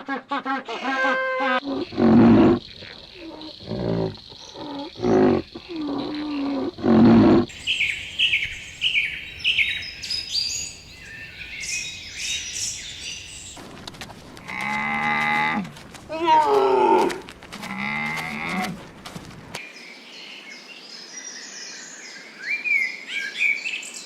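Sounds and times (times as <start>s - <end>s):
low drawn-out animal call: 0.1s - 7.6s
bird chirping high: 7.5s - 13.6s.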